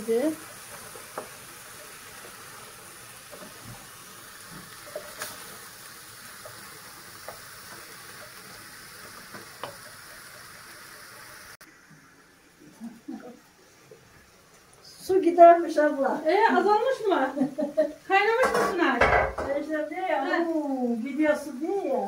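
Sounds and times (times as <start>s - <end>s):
meat sizzling in a pan: 0.0s - 22.0s
wooden spoon knocking on pan: 18.4s - 19.7s.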